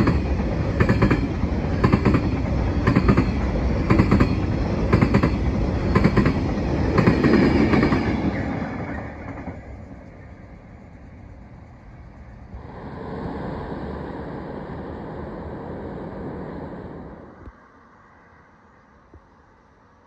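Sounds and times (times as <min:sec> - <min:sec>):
train rolling past: 0:00.0 - 0:18.7
steady vehicle-like noise: 0:10.9 - 0:20.0.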